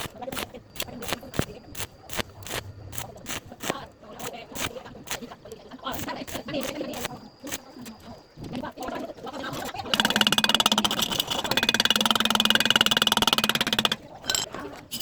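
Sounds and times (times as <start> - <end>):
welding arc buzzing and crackling: 0.0 - 5.3, 5.9 - 7.7.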